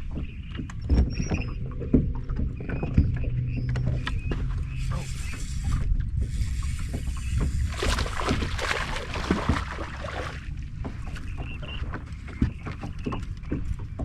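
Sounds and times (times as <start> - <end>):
small knocks and clicks: 0.0 - 4.7
water around a boat: 0.0 - 14.0
wind rumble: 0.0 - 14.0.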